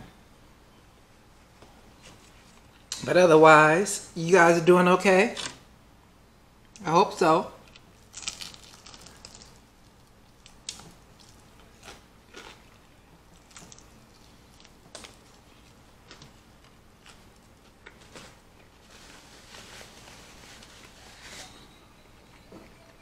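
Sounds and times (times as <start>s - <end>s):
crisp crunches of chewing: 7.6s - 19.2s.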